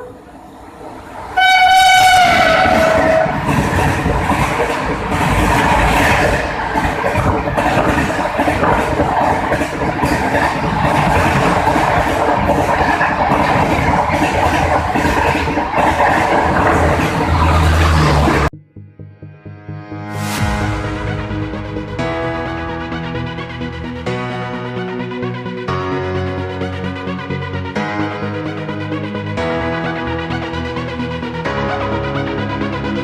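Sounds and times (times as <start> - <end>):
train rumbling past: 0.0 - 18.5, 20.2 - 25.4
wheels clattering on rails: 0.0 - 18.5
train horn blast: 1.3 - 3.8.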